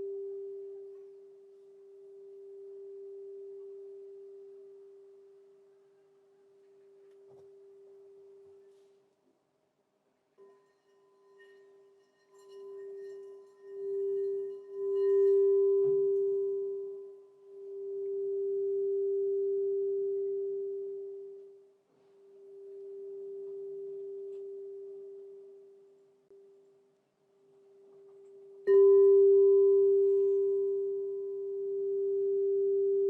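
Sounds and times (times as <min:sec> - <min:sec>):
crystal singing bowl tone: 0:00.0 - 0:08.9, 0:10.4 - 0:26.9, 0:27.5 - 0:33.0.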